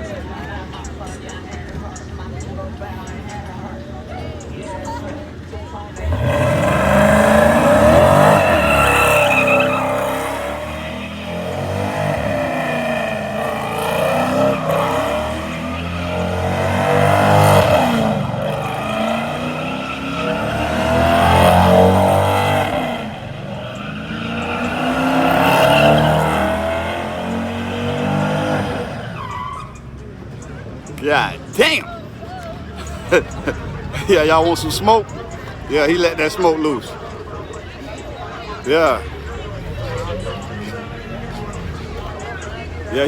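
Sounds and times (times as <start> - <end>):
tyres spinning: 0.0 - 43.0
car engine revving hard: 6.0 - 29.8.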